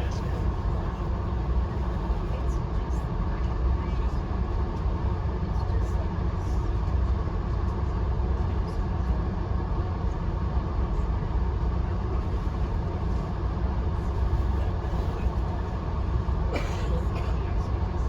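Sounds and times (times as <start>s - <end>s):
train car rumbling in motion: 0.0s - 18.0s.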